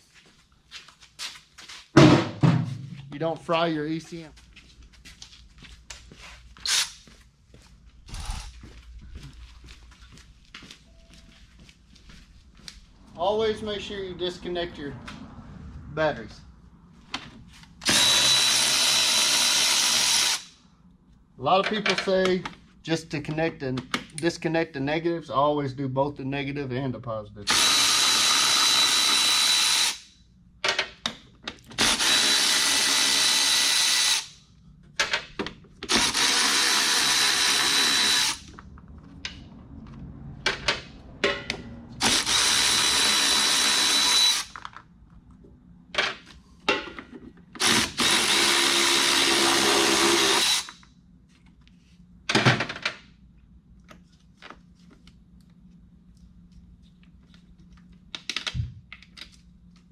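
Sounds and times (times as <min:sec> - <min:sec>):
cordless drill whine: 0:17.8 - 0:20.5, 0:27.5 - 0:30.0, 0:31.8 - 0:34.3, 0:35.9 - 0:38.5, 0:42.0 - 0:44.6, 0:47.6 - 0:50.8.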